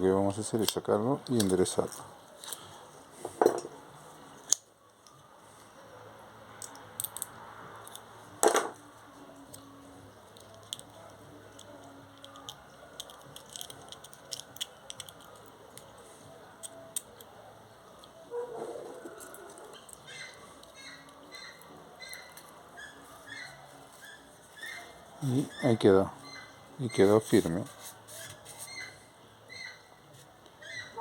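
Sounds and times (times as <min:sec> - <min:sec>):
light clicks of parts: 0:06.6 - 0:08.1, 0:09.4 - 0:16.0.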